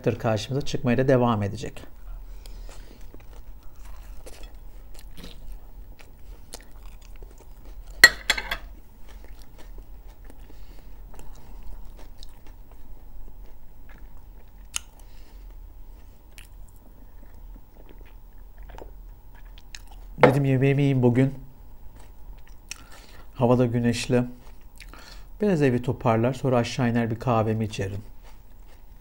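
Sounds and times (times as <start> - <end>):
person chewing: 2.0 - 8.1, 8.7 - 20.2, 21.8 - 23.4, 24.4 - 25.3, 28.0 - 29.0.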